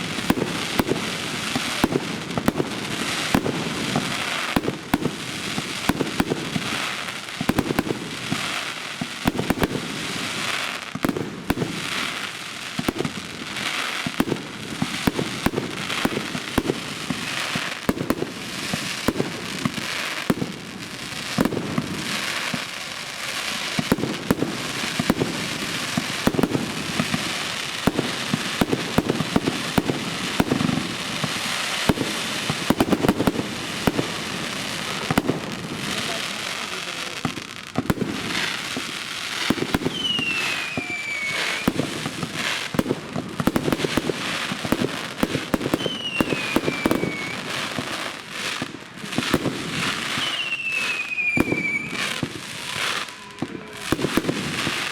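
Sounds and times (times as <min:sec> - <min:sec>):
firework crackling: 0:00.0 - 0:54.9
firework shells booming: 0:23.7 - 0:48.0, 0:48.6 - 0:54.9.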